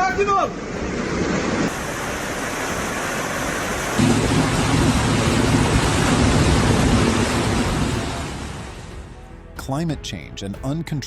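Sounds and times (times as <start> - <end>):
heavy rain pouring: 0.0 - 9.2
low hum: 0.5 - 9.2.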